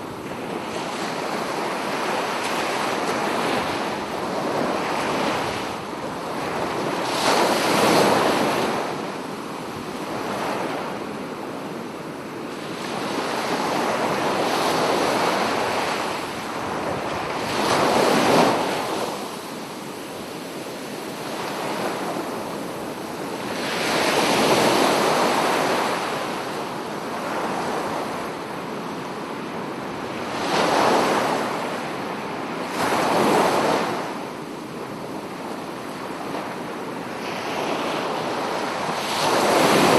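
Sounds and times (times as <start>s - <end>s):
sea waves breaking: 12.6s - 28.4s.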